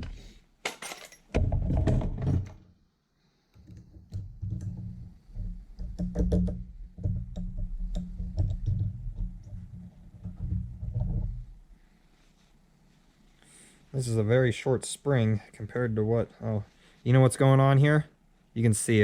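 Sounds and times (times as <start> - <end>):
small clicks and knocks: 3.5 - 11.5.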